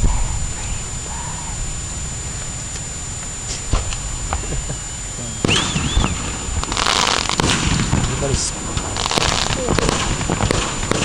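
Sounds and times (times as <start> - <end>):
fireworks crackling burst: 0.0 - 11.0
steady low rumble: 0.0 - 11.0
fireworks popping and banging: 5.4 - 11.0.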